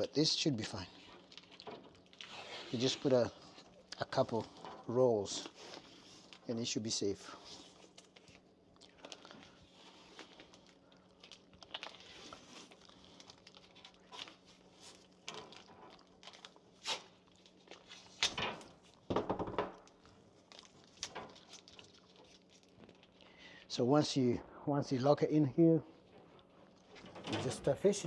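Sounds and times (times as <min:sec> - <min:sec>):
tape crinkling and crackling: 0:00.0 - 0:24.2, 0:25.8 - 0:28.0
tape ripping: 0:09.0 - 0:19.0, 0:20.4 - 0:23.1.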